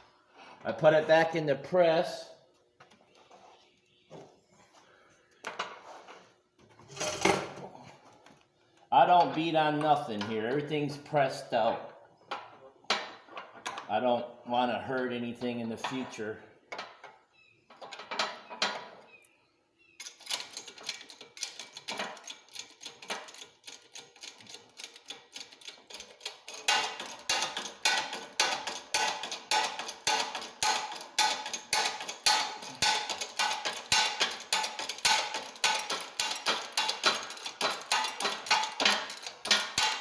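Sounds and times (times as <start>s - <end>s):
press clicking metallically: 20.3s - 40.0s.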